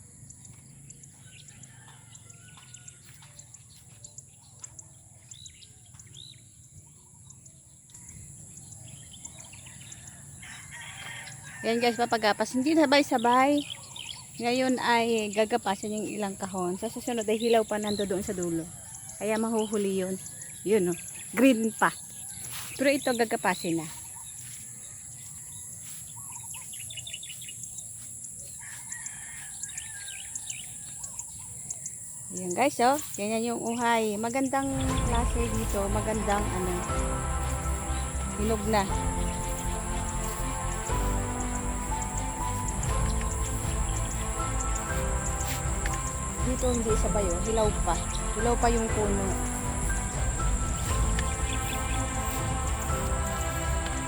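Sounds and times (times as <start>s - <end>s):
small birds chirping: 0.0s - 54.0s
rooster crowing: 1.2s - 3.5s, 9.7s - 12.7s, 28.5s - 31.2s
high-pitched insect buzz: 34.8s - 54.0s.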